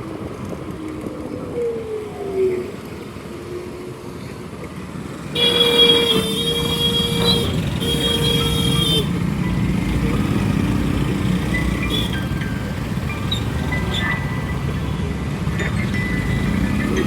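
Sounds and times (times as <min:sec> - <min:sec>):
road traffic noise: 0:00.0 - 0:17.0
vehicle horn blast: 0:05.4 - 0:09.1.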